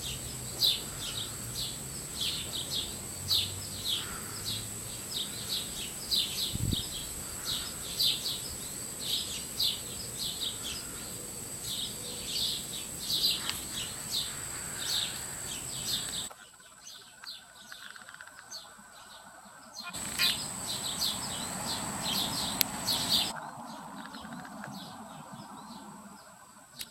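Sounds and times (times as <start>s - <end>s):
small bird chirping: 0.0s - 18.7s, 19.8s - 26.9s
steady high tone: 20.0s - 23.4s.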